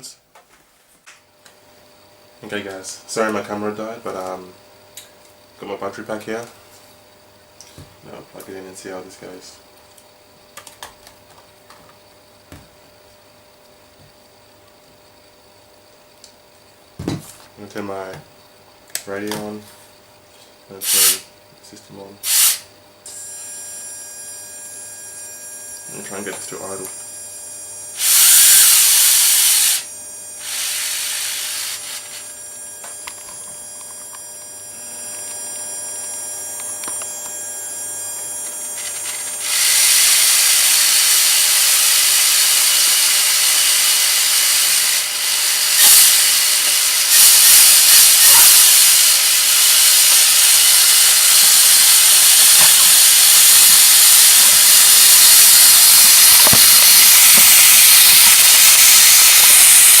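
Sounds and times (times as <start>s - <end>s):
faint high electric whine: 0.0s - 60.0s
loud steady hissing rush: 20.7s - 22.7s, 28.0s - 33.8s, 36.0s - 60.0s.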